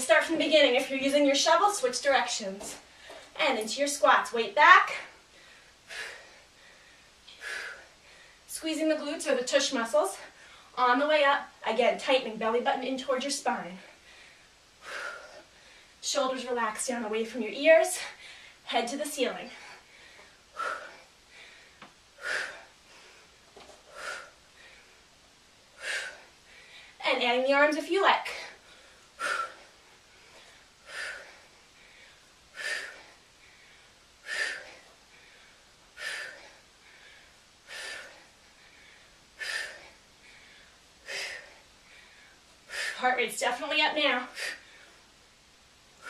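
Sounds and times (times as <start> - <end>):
woman breathing sharply: 5.3 - 8.5, 13.8 - 16.0, 18.0 - 18.6, 19.5 - 25.1, 25.7 - 27.0, 28.3 - 43.0.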